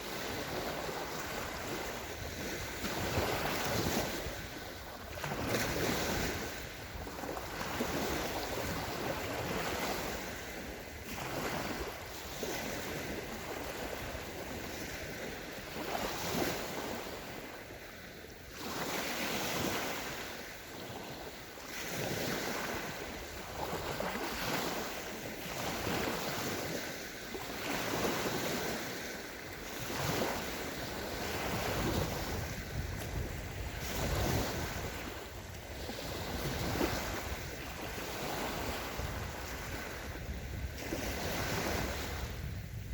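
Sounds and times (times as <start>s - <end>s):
waves breaking on beach: 0.0s - 42.9s
wind: 0.0s - 42.9s.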